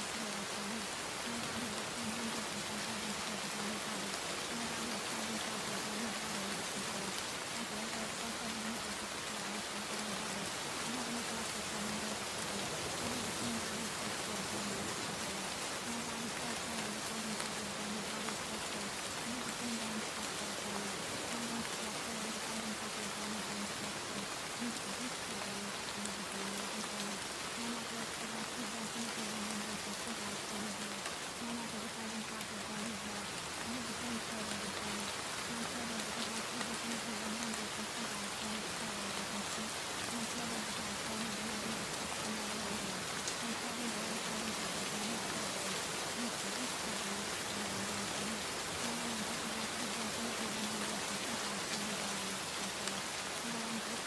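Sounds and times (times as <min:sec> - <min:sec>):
rain falling hiss: 0:00.0 - 0:54.0.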